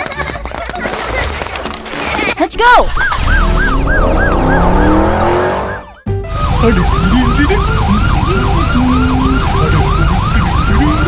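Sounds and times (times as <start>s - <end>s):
cartoon police siren wailing: 2.8s - 11.0s
background music: 3.4s - 11.0s.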